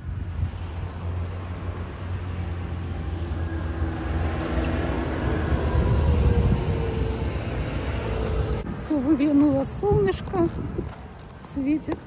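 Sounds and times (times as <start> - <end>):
vehicle engine passing by: 0.4 - 8.7.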